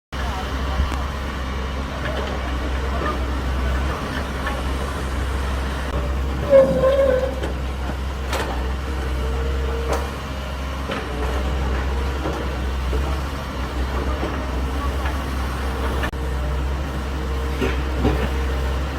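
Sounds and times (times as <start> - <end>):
diesel engine running: 0.1 - 18.9
loud squeal: 6.4 - 7.5.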